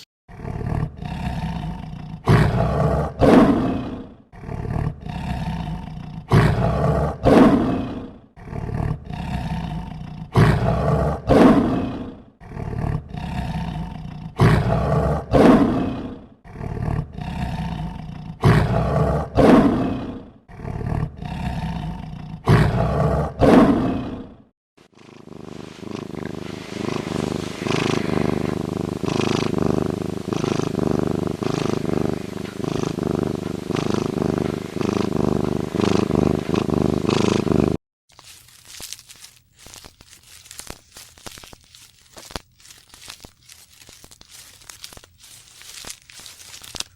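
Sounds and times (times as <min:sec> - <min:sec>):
big cat rough calls: 0:00.3 - 0:24.4, 0:25.0 - 0:37.8
continuous animal sound: 0:00.3 - 0:37.8.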